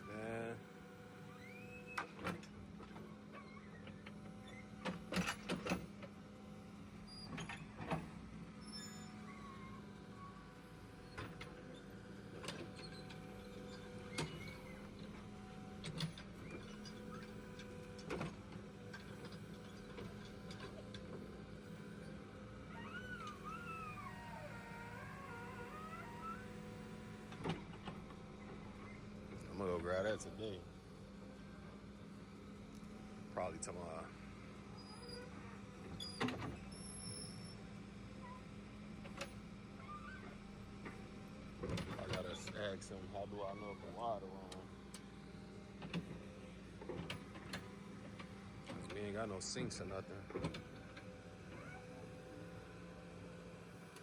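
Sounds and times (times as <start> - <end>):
machine engine humming: 9.8 - 34.7.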